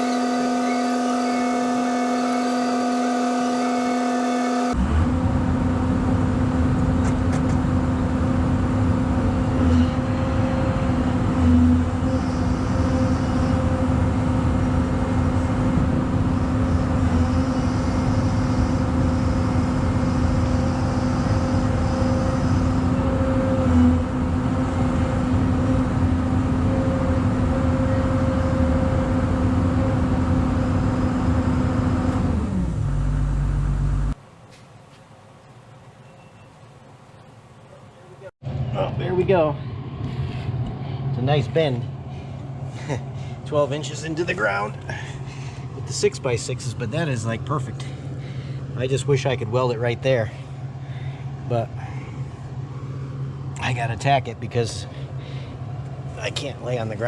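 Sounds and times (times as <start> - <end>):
diesel engine running at high revs: 0.0 - 34.2.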